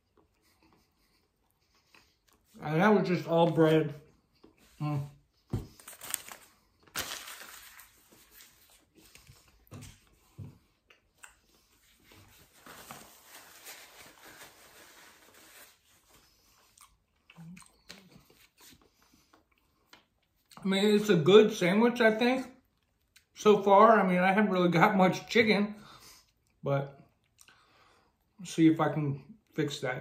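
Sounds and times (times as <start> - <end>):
faint chewing: 0.0 - 2.6, 16.2 - 20.7, 26.2 - 27.8
soft rustles of sandwich: 0.0 - 20.5.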